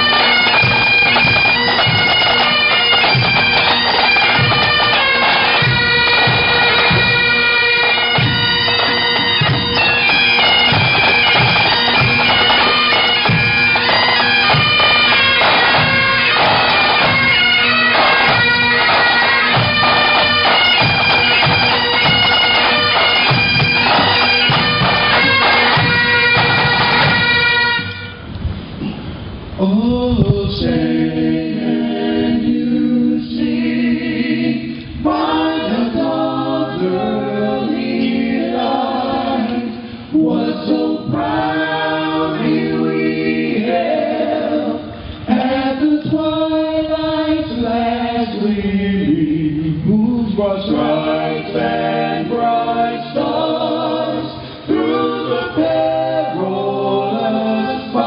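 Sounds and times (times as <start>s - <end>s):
bagpipes playing a tune: 0.0s - 28.3s
drum beats: 0.0s - 28.6s.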